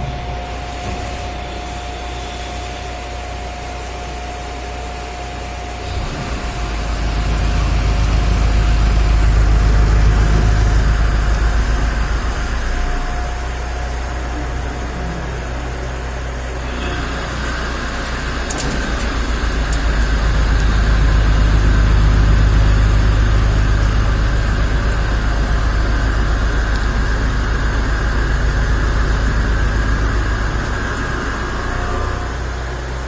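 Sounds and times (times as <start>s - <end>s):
machine hum and whine: 0.0s - 33.0s.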